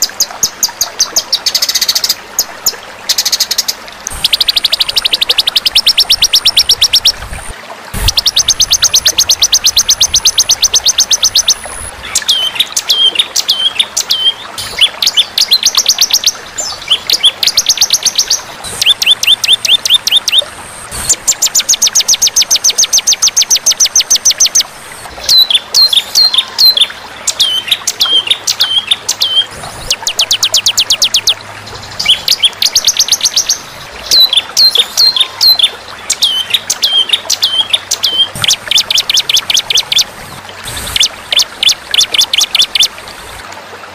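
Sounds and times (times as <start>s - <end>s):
songbird rapid high trills: 3.2s - 24.6s.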